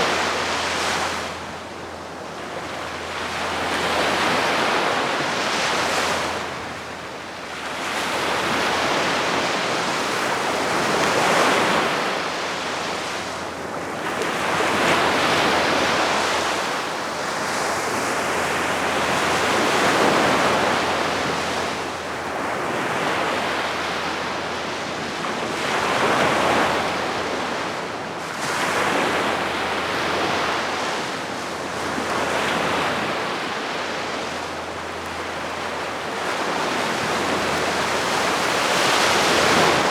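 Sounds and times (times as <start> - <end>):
light wind: 0.0 - 39.9
sea waves breaking on beach: 14.2 - 39.9.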